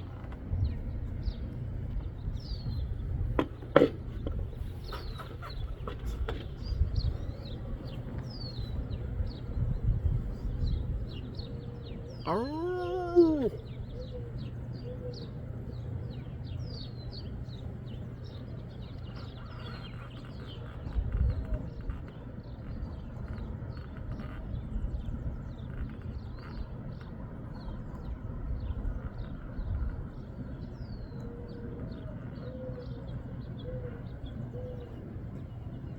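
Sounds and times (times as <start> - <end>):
low wind rumbles on microphone: 0.0 - 35.9
small birds chirping: 0.0 - 35.9
faint wavering calls: 12.2 - 14.2.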